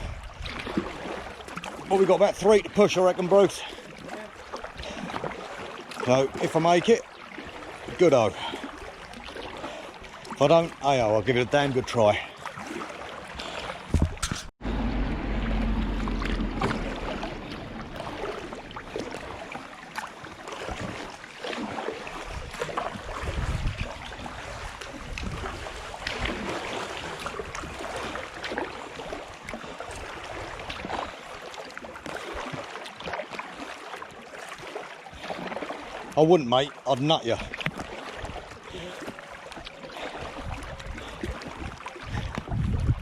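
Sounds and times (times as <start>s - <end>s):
water splashing around canoe: 0.0s - 43.0s
low rumble: 14.6s - 19.6s.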